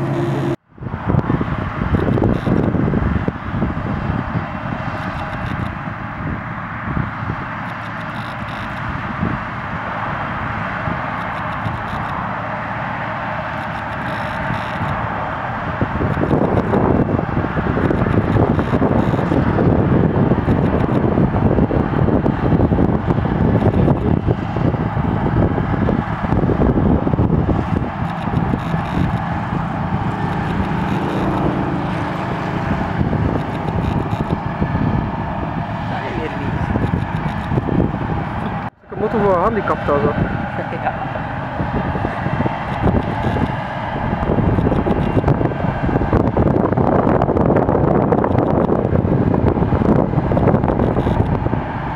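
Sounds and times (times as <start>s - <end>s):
heavy harvest machinery running: 0.0s - 51.9s.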